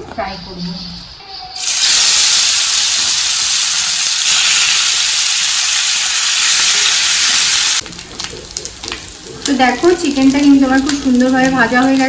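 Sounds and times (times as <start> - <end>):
chicken sizzling in hot oil: 1.6 - 7.9.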